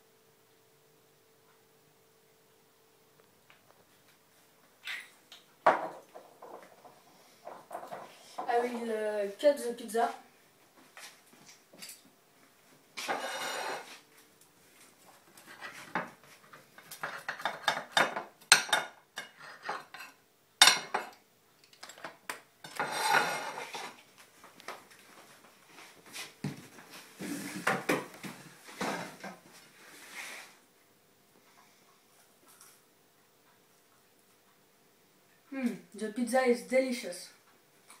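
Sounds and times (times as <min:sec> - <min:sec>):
cutlery scraping on a plate: 0:13.0 - 0:14.0, 0:16.9 - 0:21.2, 0:22.6 - 0:24.0.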